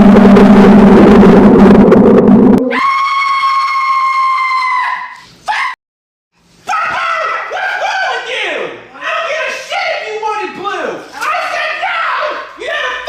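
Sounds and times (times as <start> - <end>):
man screaming: 2.7 - 5.0.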